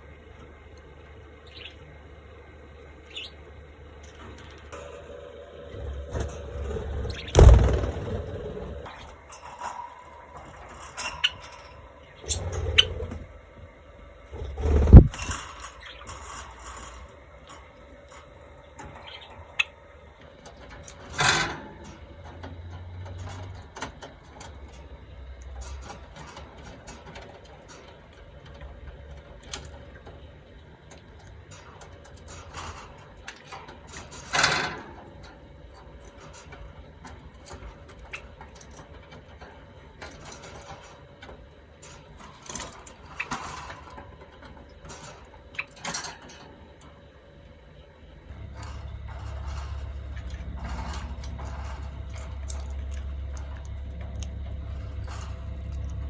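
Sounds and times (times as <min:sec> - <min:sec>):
birds clicking and tapping in cage: 0:04.0 - 0:13.3, 0:14.4 - 0:47.0, 0:48.3 - 0:56.0
low thud: 0:07.3 - 0:08.4.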